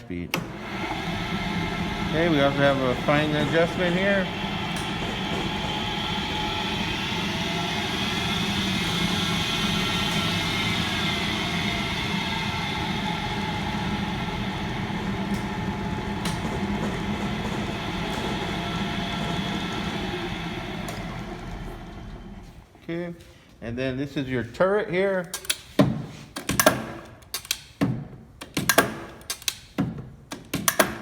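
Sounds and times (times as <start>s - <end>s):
lathe motor humming and whining: 0.4s - 22.6s.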